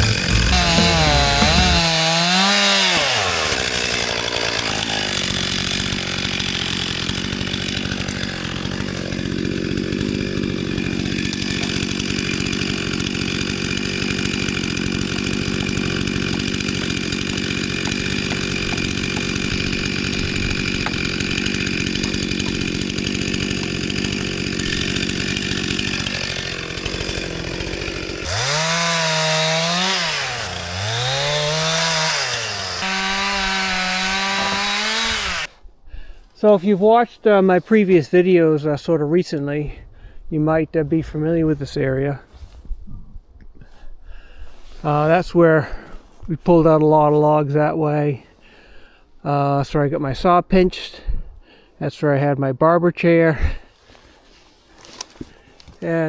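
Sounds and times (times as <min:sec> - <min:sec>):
chainsaw cutting: 0:00.0 - 0:35.6.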